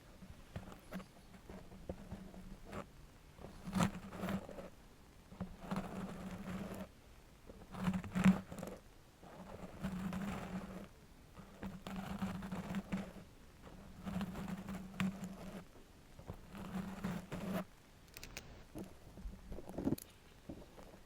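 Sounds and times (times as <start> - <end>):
metal nail scratching on surface: 9.4 - 15.6, 16.3 - 18.4.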